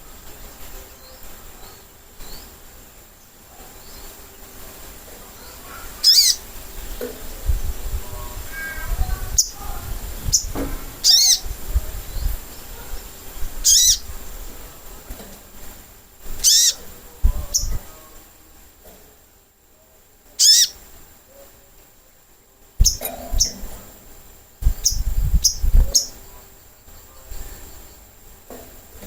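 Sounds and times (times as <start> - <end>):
bird calling sharp high notes: 5.6 - 6.5, 13.6 - 14.1, 16.4 - 16.8, 20.4 - 20.8.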